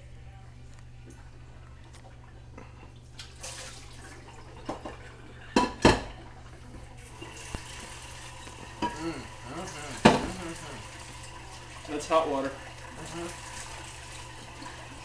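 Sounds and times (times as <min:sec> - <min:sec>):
water running from sink tap: 0:03.2 - 0:15.0
dishes knocking in sink: 0:05.6 - 0:06.2, 0:09.9 - 0:10.4.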